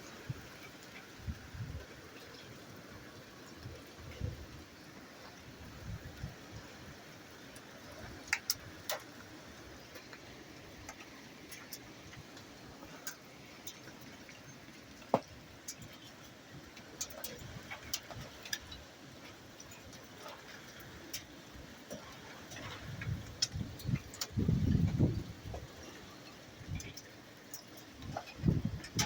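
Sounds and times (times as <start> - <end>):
rain and wind hiss: 0.0 - 29.0
raindrops tapping hard surface: 7.4 - 29.0.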